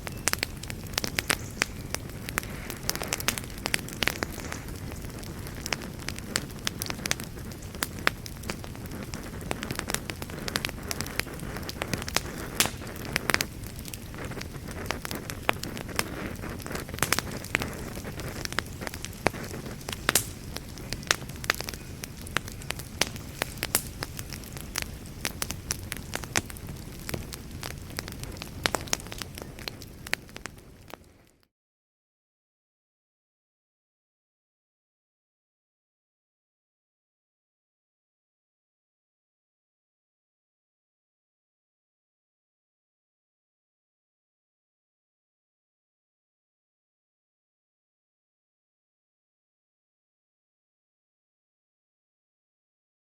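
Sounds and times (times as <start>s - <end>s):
fire crackling and popping: 0.0s - 31.5s
fire rumbling and hissing: 0.0s - 31.5s.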